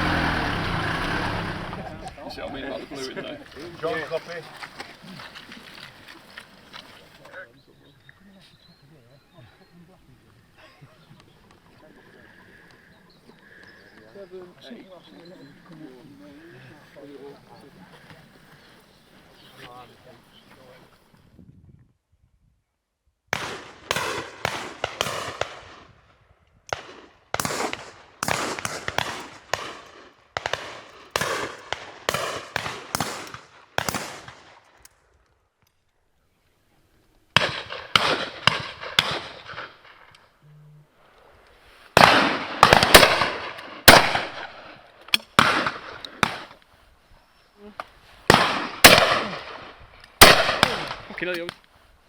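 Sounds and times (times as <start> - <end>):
shotguns firing with echo: 23.3 - 26.0, 26.7 - 34.8, 37.3 - 40.1, 42.0 - 46.6, 48.3 - 51.4.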